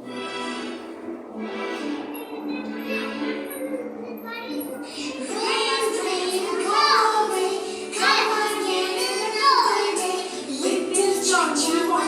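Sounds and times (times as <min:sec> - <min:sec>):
background music: 0:00.0 - 0:04.2, 0:05.3 - 0:12.0
child singing: 0:02.5 - 0:12.0.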